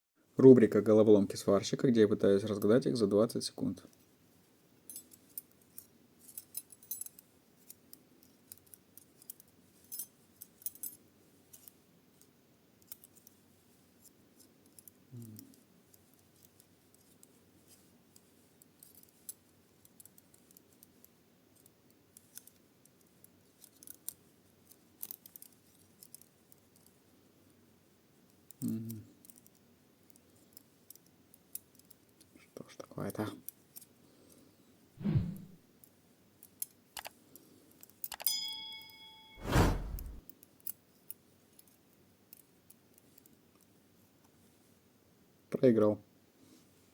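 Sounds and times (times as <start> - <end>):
person humming low: 28.6 - 29.0.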